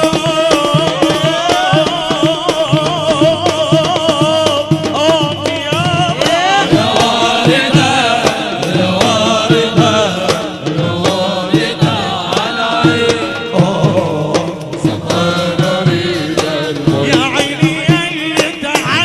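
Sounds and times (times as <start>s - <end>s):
drum beats: 0.0s - 19.0s
man singing: 0.0s - 19.0s.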